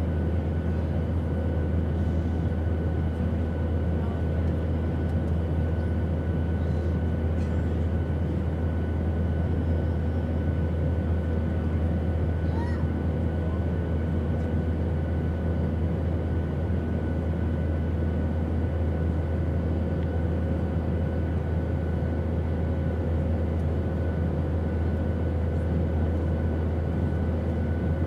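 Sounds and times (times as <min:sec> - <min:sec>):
airplane drone: 0:00.0 - 0:28.0.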